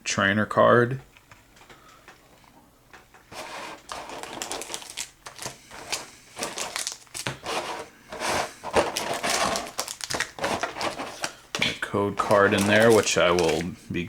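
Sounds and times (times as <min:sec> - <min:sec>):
plastic packaging crinkling: 0:03.3 - 0:13.8.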